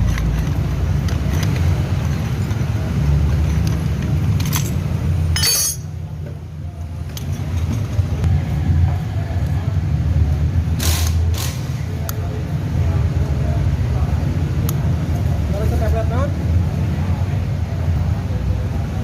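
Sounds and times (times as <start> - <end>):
metallic clinks of tools: 4.4 - 6.0.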